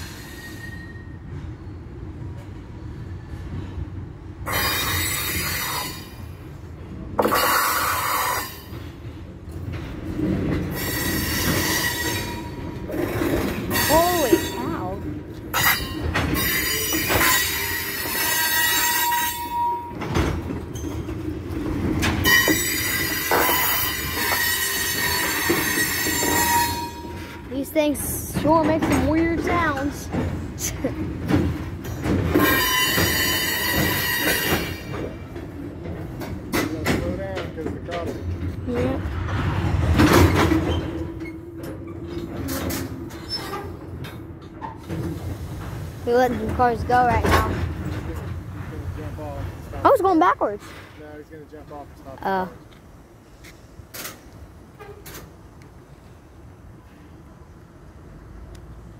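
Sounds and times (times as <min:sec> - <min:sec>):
steel wheels squealing: 0:00.0 - 0:01.4, 0:04.4 - 0:06.4, 0:07.2 - 0:08.9, 0:10.7 - 0:20.1, 0:20.7 - 0:21.3, 0:22.2 - 0:27.4, 0:32.3 - 0:35.0, 0:40.2 - 0:44.9
low train rumble: 0:00.0 - 0:58.9
wheels scraping and hissing: 0:07.2 - 0:09.0
clanks and knocks from cars: 0:12.6 - 0:18.2, 0:19.9 - 0:24.4, 0:27.0 - 0:51.8.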